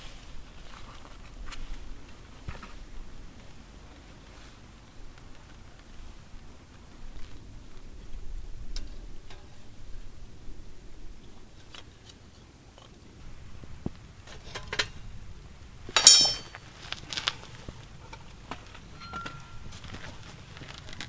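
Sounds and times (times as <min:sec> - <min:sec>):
cookware knocking and clinking: 0:16.0 - 0:16.5.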